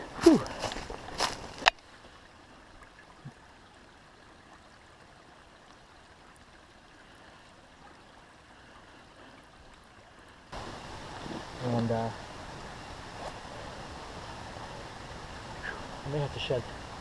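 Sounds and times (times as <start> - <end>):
faint rushing background noise: 10.3 - 17.0.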